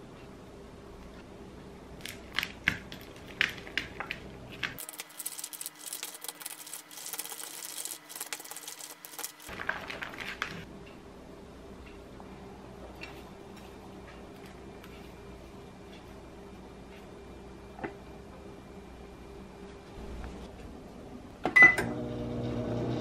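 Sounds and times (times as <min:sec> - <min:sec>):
sticky clicking and squishing: 0:02.0 - 0:10.6.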